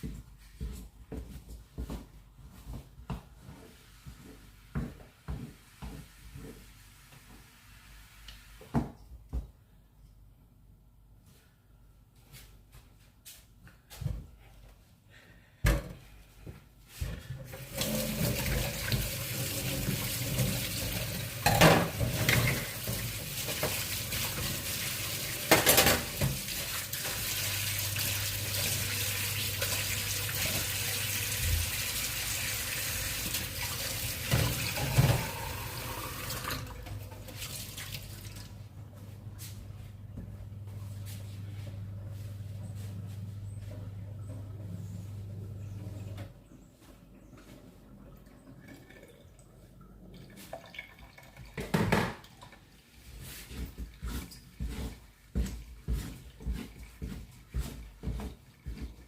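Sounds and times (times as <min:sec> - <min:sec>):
tap water running into sink: 0:17.5 - 0:38.6, 0:48.4 - 0:49.5, 0:50.1 - 0:52.7.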